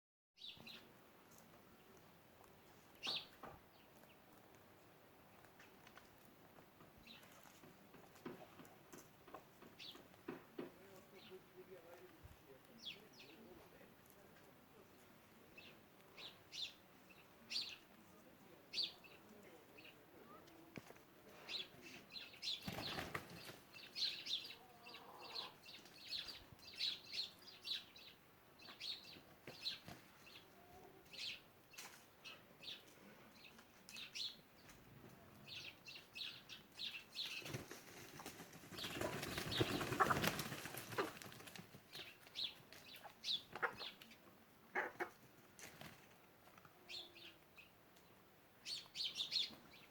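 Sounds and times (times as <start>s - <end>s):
chickens chirping: 21.3s - 31.5s, 35.5s - 46.0s
wing flapping: 22.6s - 23.6s, 37.2s - 41.8s.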